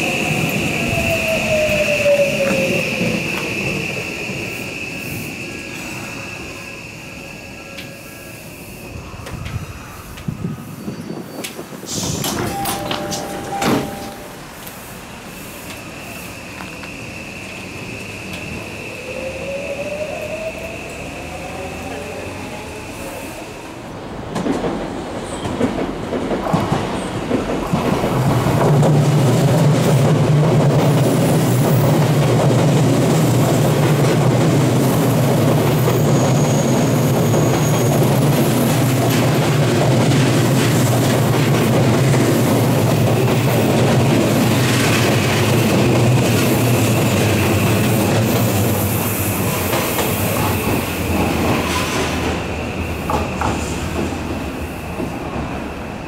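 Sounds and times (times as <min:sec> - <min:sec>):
train wheels rumbling and clacking: 0:00.0 - 0:07.0, 0:08.8 - 0:56.0
high wheel squeal: 0:35.8 - 0:38.9.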